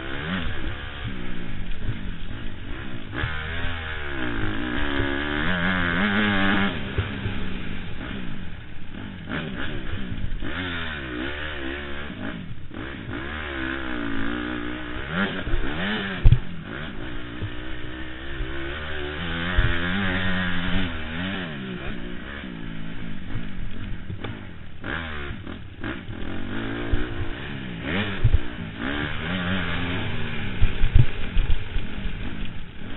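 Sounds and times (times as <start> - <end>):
motocross bike engine revving: 0.0 - 32.9.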